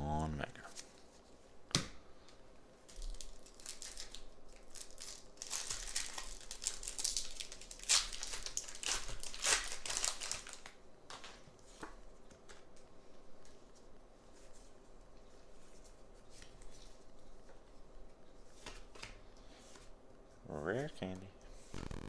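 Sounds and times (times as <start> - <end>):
foil wrapper crinkling: 2.8 - 12.8, 21.7 - 22.0
foil pack tearing open: 2.9 - 11.3, 21.7 - 22.0.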